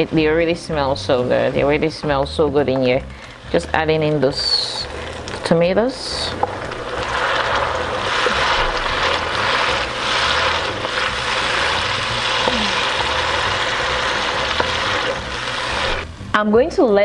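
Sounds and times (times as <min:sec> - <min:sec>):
tomato paste sizzling in oil: 0:00.0 - 0:16.3
wooden spoon stirring: 0:04.2 - 0:16.1.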